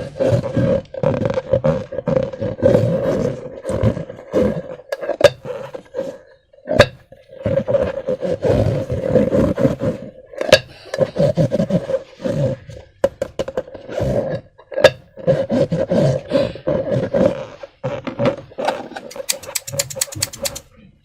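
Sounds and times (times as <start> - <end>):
slime squelching: 19.1 - 20.6.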